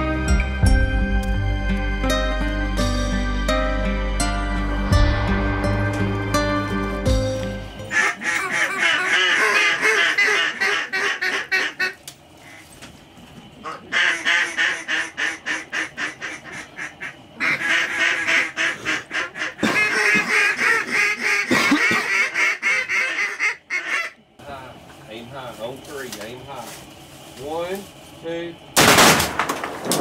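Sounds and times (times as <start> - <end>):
duck calls quacking: 7.9 - 12.6, 13.6 - 24.2.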